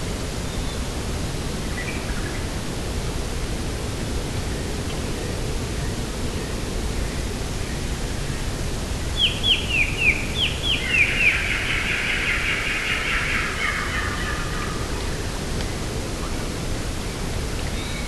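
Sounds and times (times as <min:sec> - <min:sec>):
songbird singing: 0:04.5 - 0:18.0.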